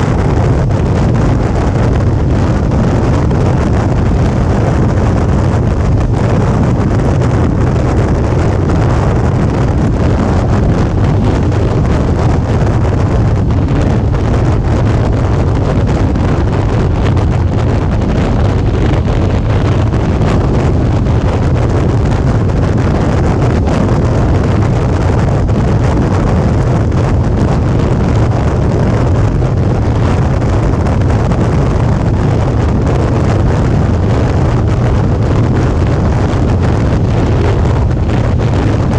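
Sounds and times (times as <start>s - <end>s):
motorcycle engine cruising: 0.0s - 38.9s
wind buffeting microphone: 0.0s - 38.9s.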